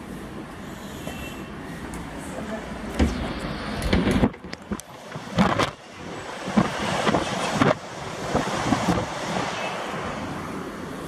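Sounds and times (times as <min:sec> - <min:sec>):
sea surf rushing: 0:02.7 - 0:11.0
wind buffeting microphone: 0:03.0 - 0:10.4.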